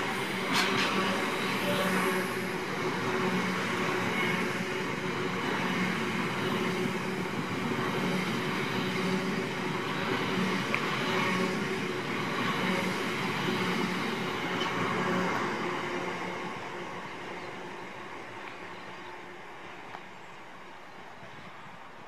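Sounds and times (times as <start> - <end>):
freight train wheels clattering: 0.0 - 15.4.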